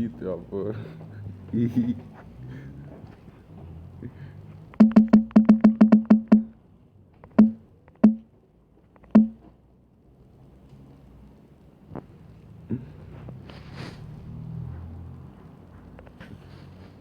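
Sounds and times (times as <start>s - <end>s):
phone notification pops: 4.8s - 6.5s, 7.4s - 8.2s, 9.1s - 9.4s.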